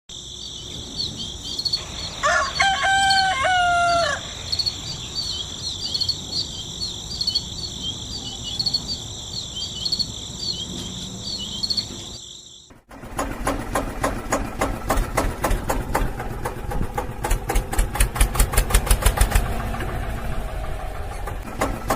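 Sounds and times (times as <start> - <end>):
crickets chirping: 0.1 - 12.8
rooster crowing: 1.8 - 5.4.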